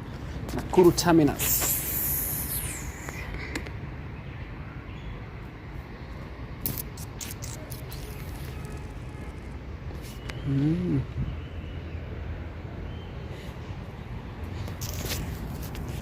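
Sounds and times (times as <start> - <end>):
sharp clicks: 6.6 - 9.4.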